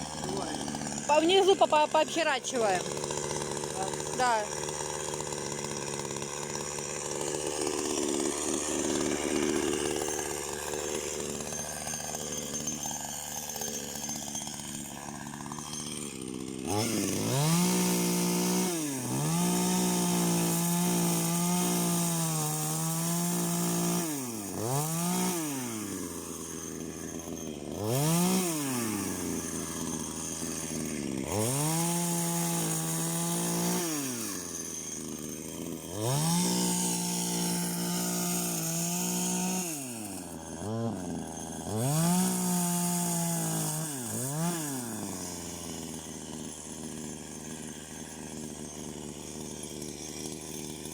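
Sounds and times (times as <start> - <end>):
chainsaw revving: 0.0 - 50.9.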